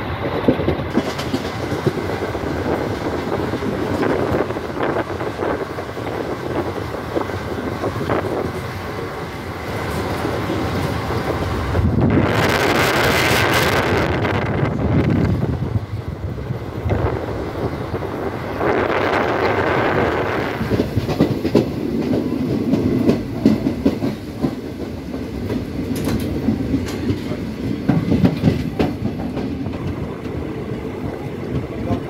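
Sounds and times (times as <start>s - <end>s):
train rumbling on track: 0.0s - 32.0s
wheels clacking over rail joints: 0.2s - 6.2s, 19.3s - 32.0s.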